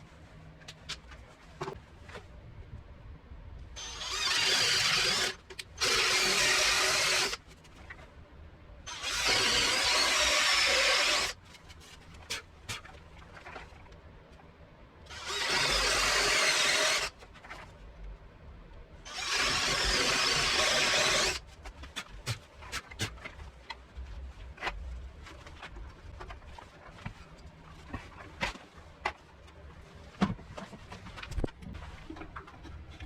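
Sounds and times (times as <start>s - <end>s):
power tool running: 3.8s - 7.4s, 8.9s - 11.4s, 15.1s - 17.1s, 19.1s - 21.4s.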